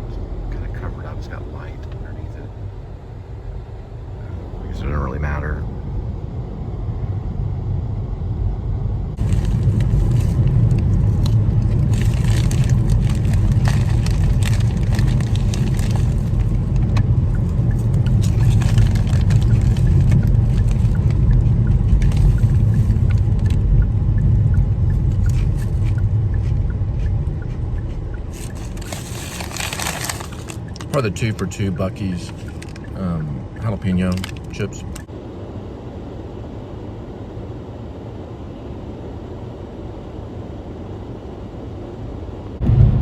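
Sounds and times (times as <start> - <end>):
road and engine rumble: 0.0 - 43.0
small clicks and rattles: 32.2 - 32.9, 34.1 - 35.1.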